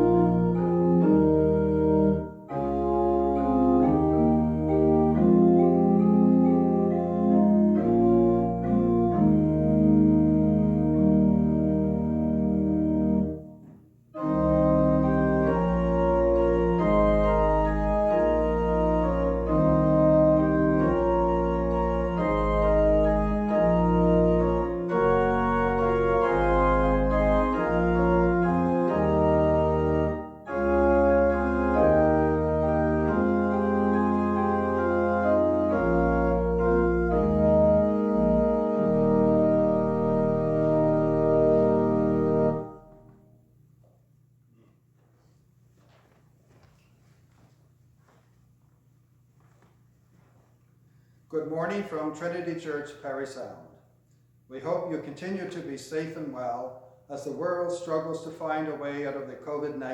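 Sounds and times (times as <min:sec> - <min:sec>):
organ playing slow chords: 0:00.0 - 0:43.7.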